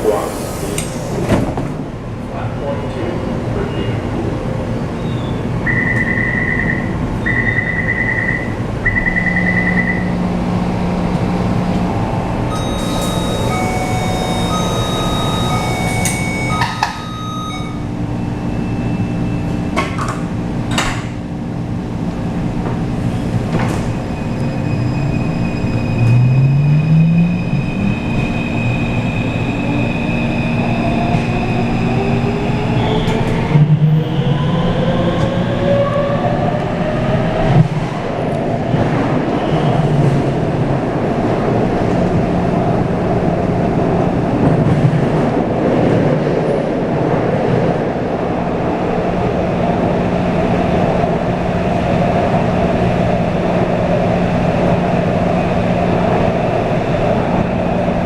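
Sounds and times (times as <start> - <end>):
train doors closing: 0.0 - 2.2, 11.1 - 26.5, 27.4 - 35.6
train motor whine: 12.5 - 17.9
warning tone beeps: 12.5 - 19.4.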